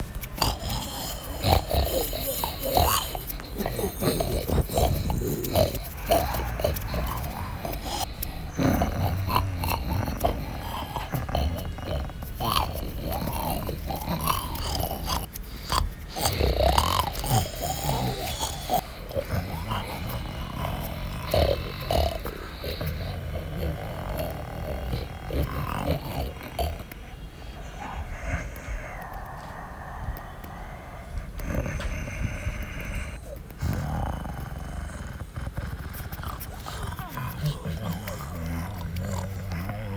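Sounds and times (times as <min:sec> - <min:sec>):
animals growling and snarling: 0:00.0 - 0:39.9.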